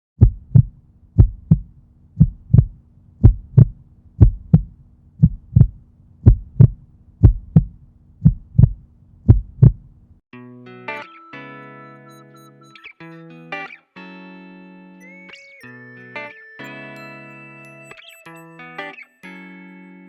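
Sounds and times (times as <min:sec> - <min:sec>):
heartbeat double thump: 0:00.2 - 0:09.9.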